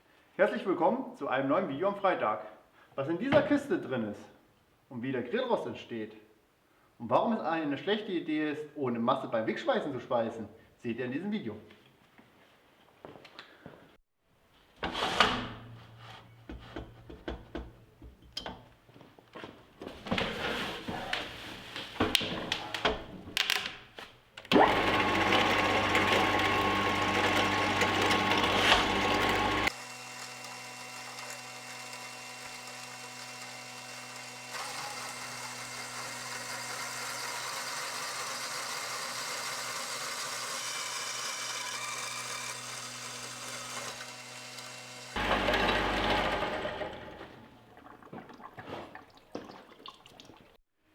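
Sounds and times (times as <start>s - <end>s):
electric power tool running: 24.5s - 47.4s.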